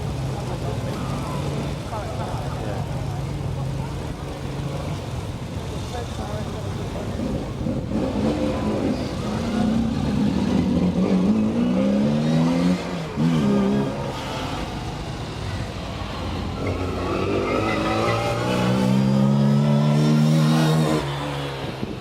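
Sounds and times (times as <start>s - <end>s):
car engine revving hard: 7.2s - 15.1s, 16.4s - 21.9s.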